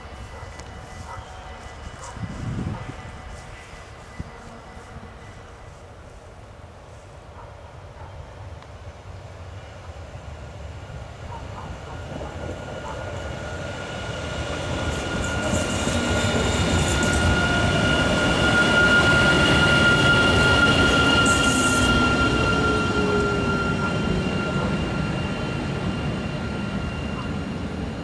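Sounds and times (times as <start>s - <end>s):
train wheels rumbling on rails: 0.0s - 6.8s, 7.4s - 28.0s
steady high tone: 13.0s - 27.7s.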